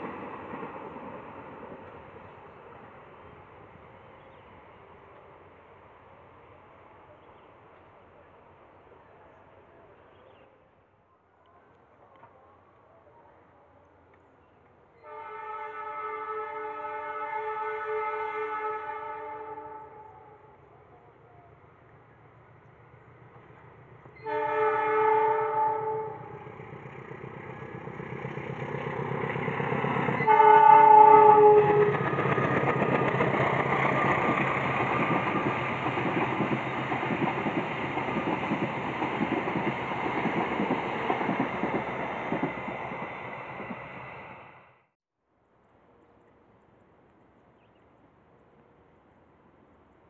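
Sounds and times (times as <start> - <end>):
train rumbling past: 0.0 - 10.3, 13.9 - 44.9
train horn blasts: 15.0 - 20.5, 24.2 - 26.4, 30.2 - 32.1.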